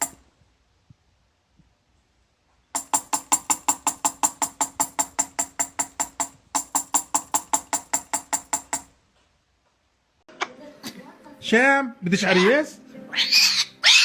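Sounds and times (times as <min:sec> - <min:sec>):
rapid sharp percussive clicks: 0:02.8 - 0:08.9.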